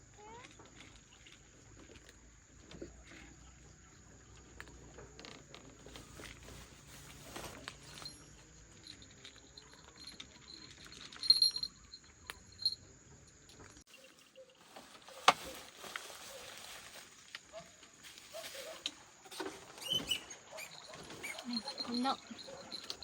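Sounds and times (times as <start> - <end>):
cat crunching dry kibble: 0.4 - 2.3.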